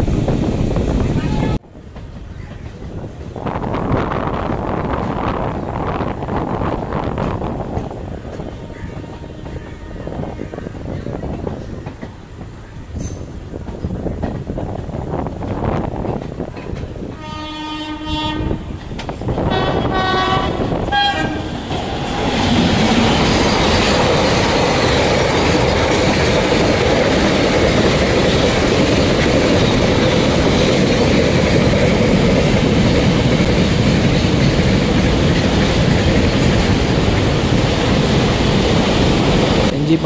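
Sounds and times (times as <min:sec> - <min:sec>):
electric train running at speed: 0:00.0 - 0:40.0
train horn blasts: 0:08.5 - 0:10.4, 0:17.1 - 0:18.8, 0:19.4 - 0:21.6.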